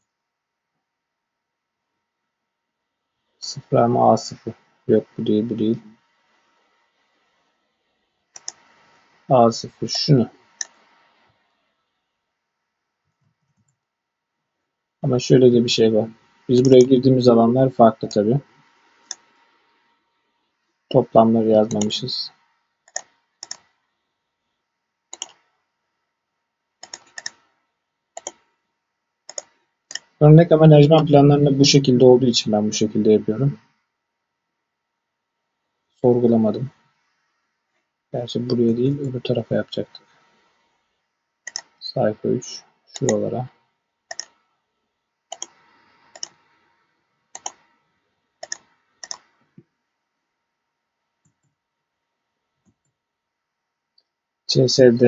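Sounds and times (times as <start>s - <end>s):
keyboard and mouse clicking: 8.3s - 8.7s, 10.6s - 10.8s, 21.6s - 22.0s, 22.9s - 23.8s, 25.1s - 25.5s, 26.8s - 27.5s, 28.2s - 28.5s, 29.3s - 30.2s, 41.5s - 41.8s, 44.1s - 44.5s, 45.3s - 46.5s, 47.3s - 47.7s, 48.4s - 49.6s.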